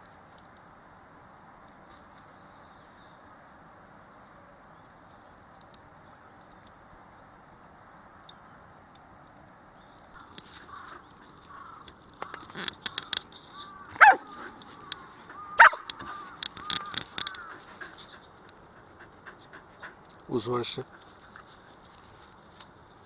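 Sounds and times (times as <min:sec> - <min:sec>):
dog yipping and whining: 0:13.9 - 0:14.5, 0:15.5 - 0:15.9
dog barking: 0:14.0 - 0:14.4, 0:15.5 - 0:15.9.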